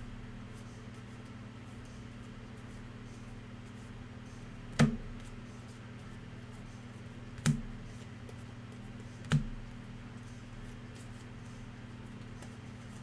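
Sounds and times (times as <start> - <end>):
steady low hum: 0.0 - 1.0.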